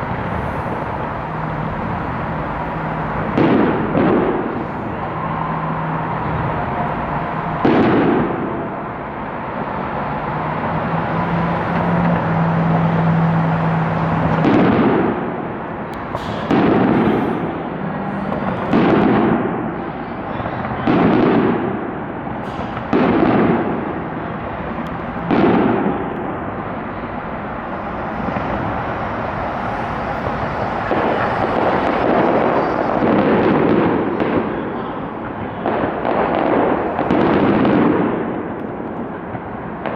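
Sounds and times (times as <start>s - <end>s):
fireworks crackling: 0.0s - 10.6s, 11.5s - 39.9s
firework shell bursts booming: 2.6s - 5.2s, 14.1s - 39.9s.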